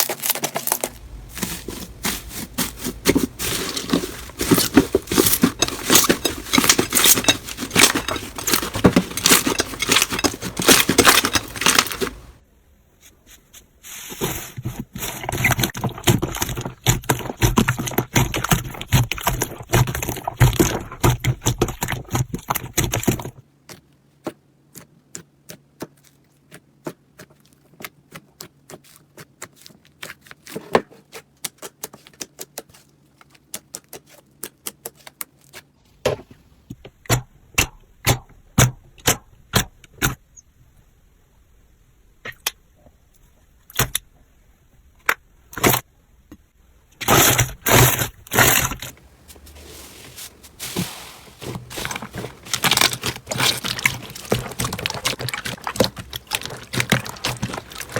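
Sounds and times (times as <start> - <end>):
slime crackling and popping: 52.5 - 57.9.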